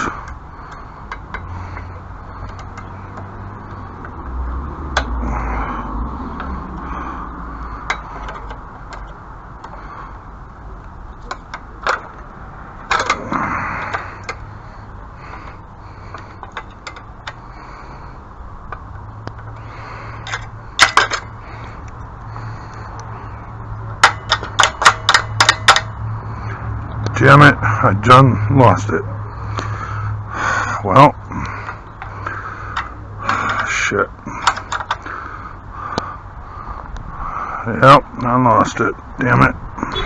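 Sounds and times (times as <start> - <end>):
rattle: 0.0 - 4.2, 6.4 - 10.2, 11.1 - 21.9, 24.0 - 26.0, 34.3 - 35.4
sharp clicks and knocks: 0.0 - 5.2, 7.7 - 9.9, 10.8 - 14.5, 15.3 - 17.5, 18.7 - 23.1, 23.8 - 26.2, 31.4 - 35.3.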